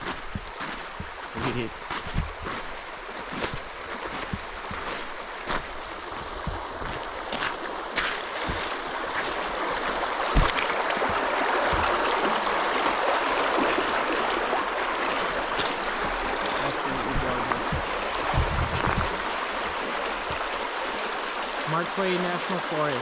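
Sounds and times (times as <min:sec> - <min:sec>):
dull low thumps: 0:00.0 - 0:02.8, 0:03.4 - 0:07.1, 0:10.3 - 0:12.3, 0:17.0 - 0:19.3
creek running over stones: 0:00.0 - 0:23.0.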